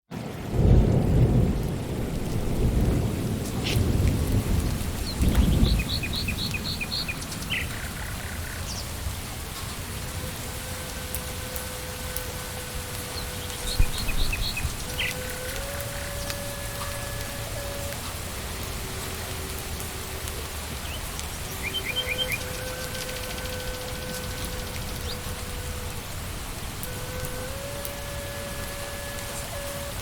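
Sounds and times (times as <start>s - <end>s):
steady rain: 0.1s - 30.0s
thunder rumble: 0.2s - 30.0s
bird chirping: 5.0s - 9.0s, 13.1s - 16.4s, 20.8s - 25.6s.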